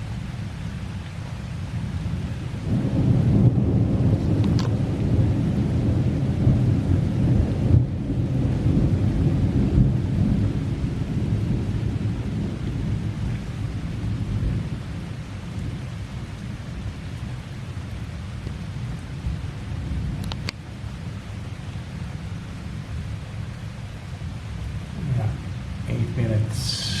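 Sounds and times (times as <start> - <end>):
steady rain: 0.0 - 27.0
rolling thunder: 2.6 - 15.8, 24.9 - 27.0.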